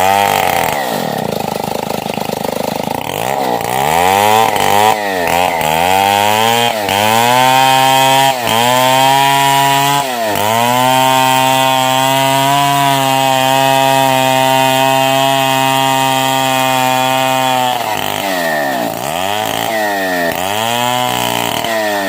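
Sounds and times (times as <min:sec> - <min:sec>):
chainsaw cutting log: 0:00.0 - 0:22.0.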